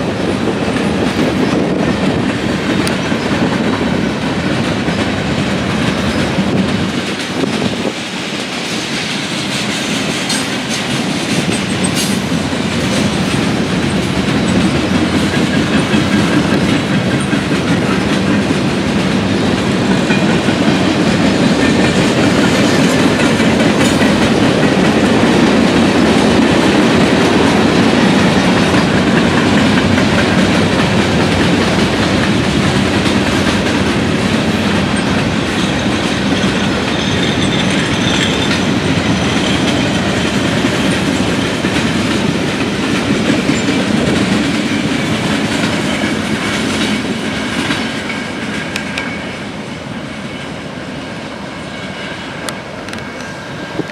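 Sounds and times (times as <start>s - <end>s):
wheels clacking over rail joints: 0.0s - 49.7s
freight train rolling past: 0.0s - 53.9s.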